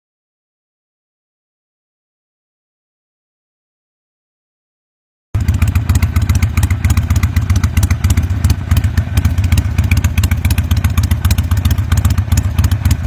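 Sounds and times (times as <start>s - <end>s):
motorcycle engine idling: 5.4s - 13.0s.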